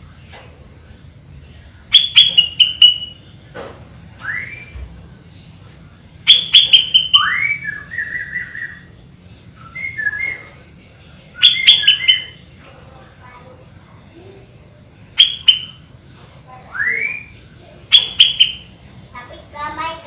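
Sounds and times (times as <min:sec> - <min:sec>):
bird whistled song phrases: 0:01.9 - 0:03.2, 0:04.2 - 0:04.8, 0:06.3 - 0:08.9, 0:09.6 - 0:10.5, 0:11.4 - 0:12.4, 0:16.7 - 0:18.7.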